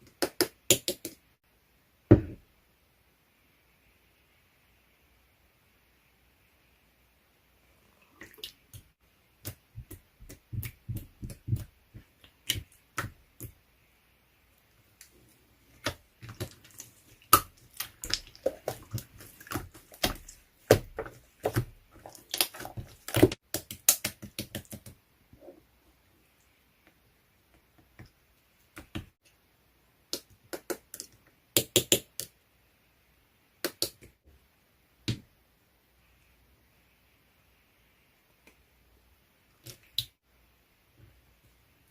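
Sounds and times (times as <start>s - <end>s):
slime squished by hand: 15.8s - 24.5s.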